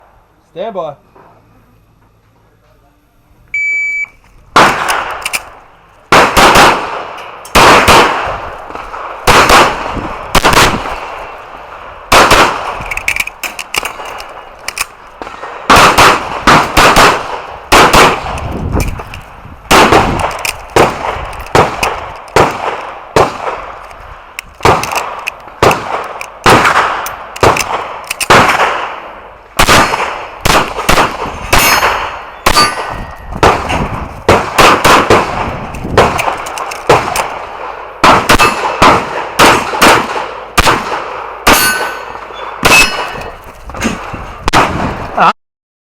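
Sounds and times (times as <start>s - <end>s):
handgun shots echoing: 4.6s - 11.4s, 12.1s - 23.8s, 24.5s - 29.0s, 29.6s - 43.4s
bullets ringing steel targets: 31.4s - 33.7s, 41.4s - 43.4s.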